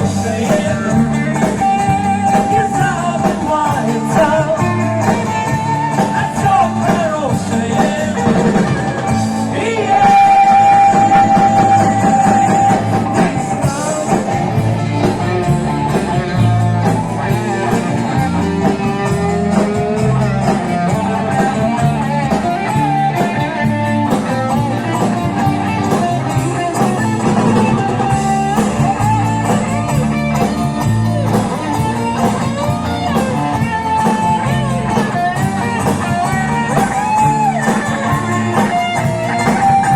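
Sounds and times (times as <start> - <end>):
person singing: 0.0 - 30.5
guitars: 0.0 - 39.9
live rock band playing: 0.0 - 39.9.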